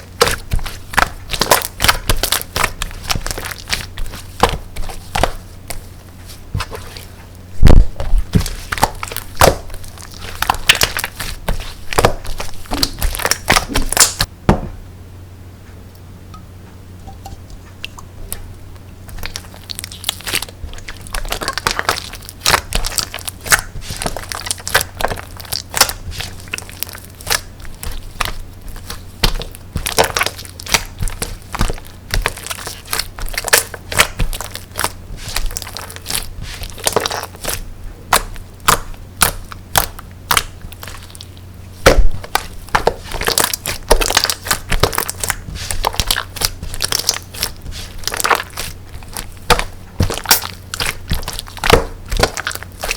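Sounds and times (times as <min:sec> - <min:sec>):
slime crackling and popping: 0:00.0 - 0:14.3, 0:19.1 - 0:52.9.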